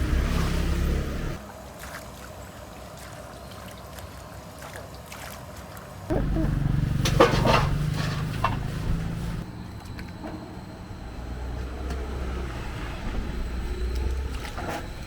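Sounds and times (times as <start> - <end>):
vehicle engine starting and running: 0.0 - 1.4, 6.1 - 15.0
clatters: 6.1 - 11.2.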